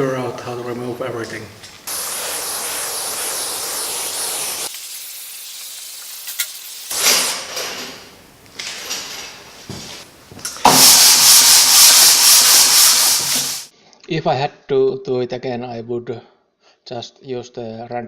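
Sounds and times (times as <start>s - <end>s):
hissing scrubbing noise: 1.6s - 7.8s, 10.6s - 13.7s.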